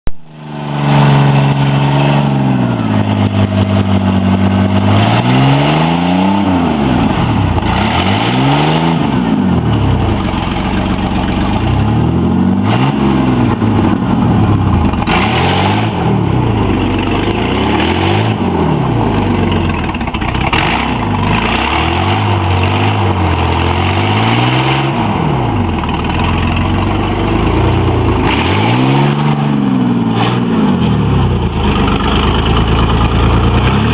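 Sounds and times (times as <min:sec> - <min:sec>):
truck engine revving: 0:00.3 - 0:33.9.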